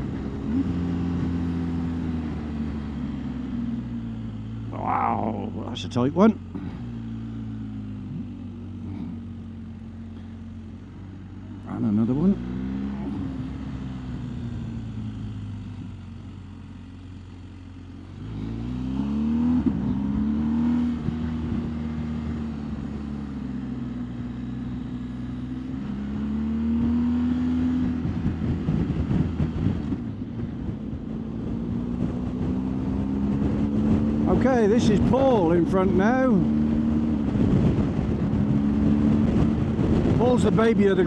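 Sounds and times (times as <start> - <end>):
motorcycle engine revving: 0.0 - 41.0
wind buffeting microphone: 36.9 - 40.7.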